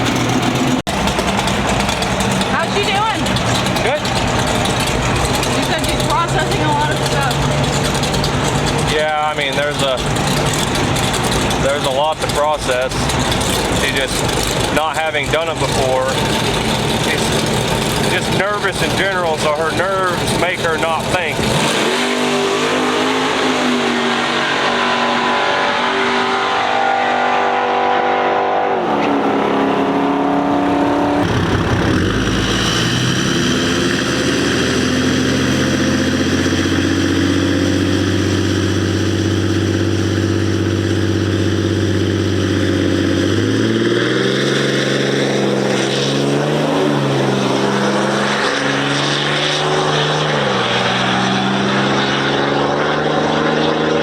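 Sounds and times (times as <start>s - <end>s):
vehicle engine revving: 0.0s - 54.0s.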